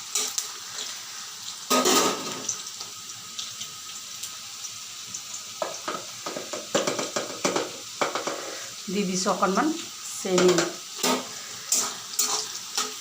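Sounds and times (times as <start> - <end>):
onions sizzling in hot oil: 0.0 - 13.0
stirring in a pan: 10.3 - 13.0.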